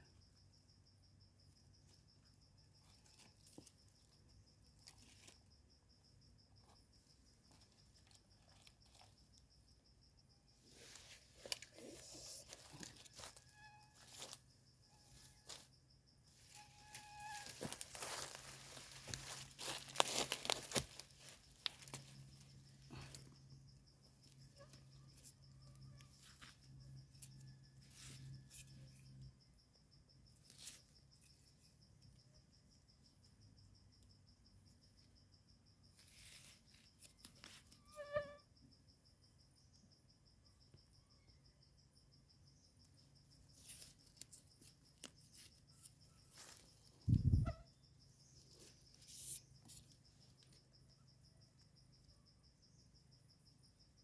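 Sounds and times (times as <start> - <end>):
insect trilling: 0.0 - 29.4, 36.0 - 38.6, 40.5 - 54.0
rustles in undergrowth: 16.3 - 23.2, 43.6 - 47.4.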